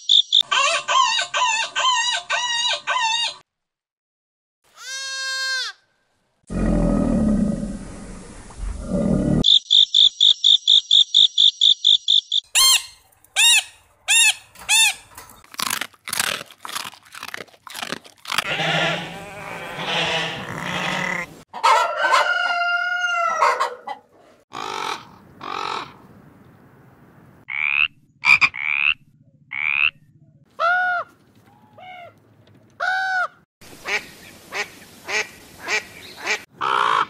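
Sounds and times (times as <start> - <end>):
animal calls: 18.3 - 21.8.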